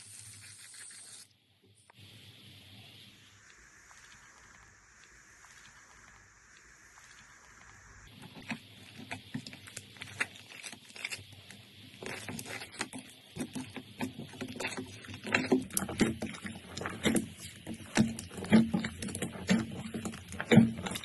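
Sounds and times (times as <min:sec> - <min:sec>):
slime popping and squelching: 0:07.0 - 0:21.0.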